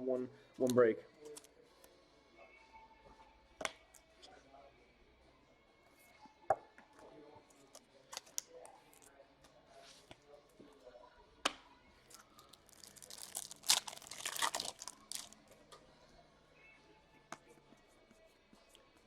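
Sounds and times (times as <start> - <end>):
wrapper tearing and crinkling: 12.1 - 15.4.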